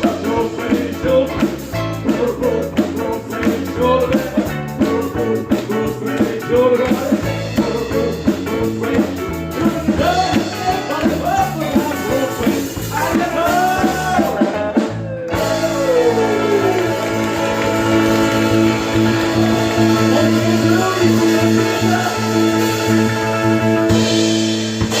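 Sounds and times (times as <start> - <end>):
person singing: 0.0 - 23.5
live rock band: 0.0 - 25.0.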